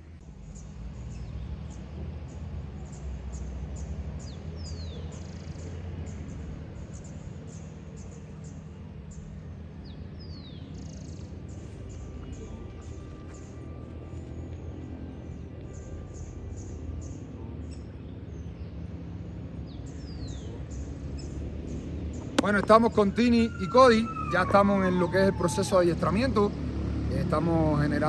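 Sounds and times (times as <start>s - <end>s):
small birds chirping: 19.7s - 24.8s.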